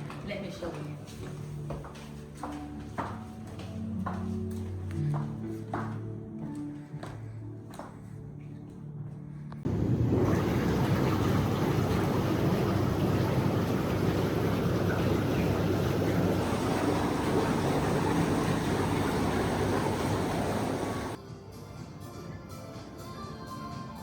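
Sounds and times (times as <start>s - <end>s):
ocean surf breaking: 9.7s - 21.2s
wind buffeting microphone: 9.7s - 21.2s.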